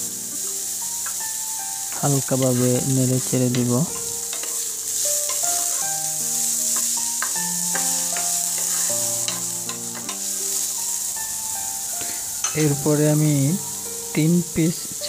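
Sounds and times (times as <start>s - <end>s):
soft background music: 0.0s - 15.0s
vegetables sizzling in oil: 0.0s - 15.0s
wooden spatula scraping pan: 5.2s - 10.3s.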